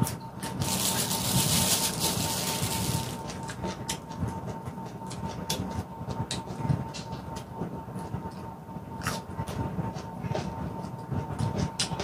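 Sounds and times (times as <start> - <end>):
crunching raw vegetables: 0.4 - 3.8.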